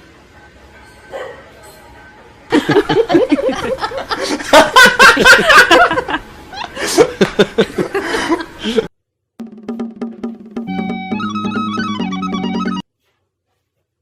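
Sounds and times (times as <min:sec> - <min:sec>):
people laughing hard: 0:02.5 - 0:08.9.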